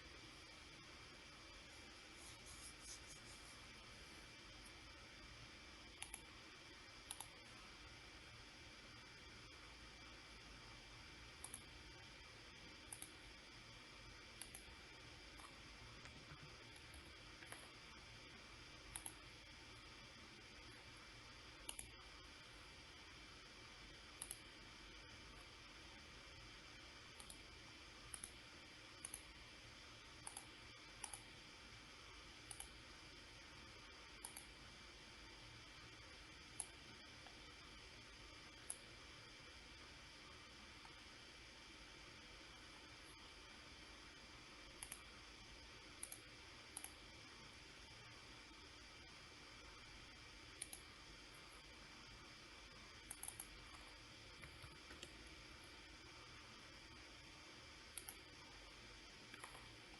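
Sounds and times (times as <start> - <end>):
low hiss: 0.0 - 59.9
computer mouse clicks: 5.9 - 6.4, 7.0 - 7.6, 11.3 - 11.9, 12.8 - 13.3, 14.3 - 19.4, 21.5 - 22.2, 24.1 - 24.6, 27.1 - 27.5, 28.1 - 29.4, 30.2 - 31.4, 32.4 - 32.9, 34.1 - 34.6, 36.4 - 37.5, 38.4 - 39.0, 44.6 - 45.2, 45.9 - 47.1, 50.5 - 51.6, 52.9 - 55.7, 57.9 - 58.5, 59.2 - 59.9.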